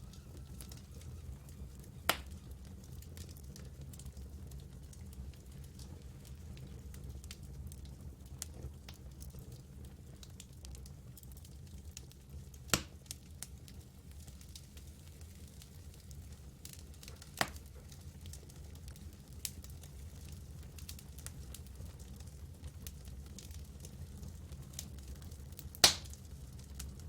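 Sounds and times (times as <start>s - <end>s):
campfire flames rumbling: 0.0s - 27.0s
fire crackling: 0.0s - 27.0s
fire sharp pops: 0.1s - 4.1s, 12.7s - 13.2s, 16.7s - 22.0s, 24.9s - 26.9s.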